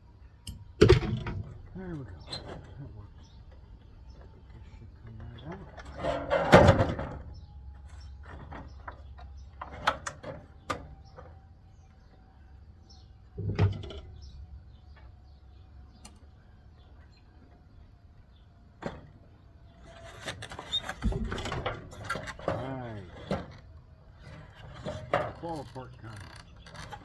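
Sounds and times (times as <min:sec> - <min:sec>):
knocks and clanks of metal parts: 0:00.8 - 0:11.4, 0:13.3 - 0:14.3, 0:19.9 - 0:23.6, 0:24.2 - 0:27.0.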